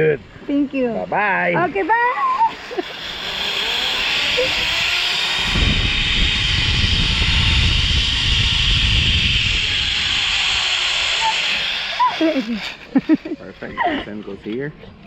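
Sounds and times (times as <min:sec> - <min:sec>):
wind rumbling on microphone: 0:00.0 - 0:12.7
zipline pulleys hissing on cable: 0:01.6 - 0:14.0.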